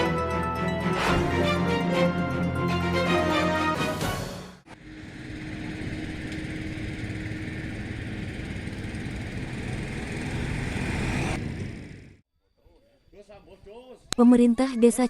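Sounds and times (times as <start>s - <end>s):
music: 0.0s - 4.7s
faint engine-like hum: 4.7s - 12.2s.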